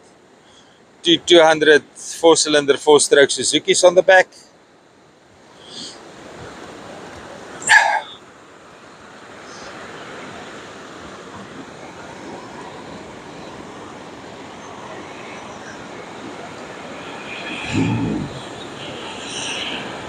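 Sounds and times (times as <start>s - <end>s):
background noise: 0.0s - 20.0s
dog barking: 7.6s - 8.1s.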